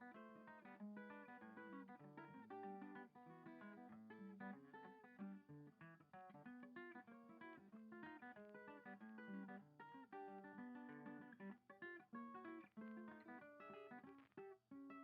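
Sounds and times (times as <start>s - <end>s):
acoustic guitar picking melody: 0.0s - 15.0s.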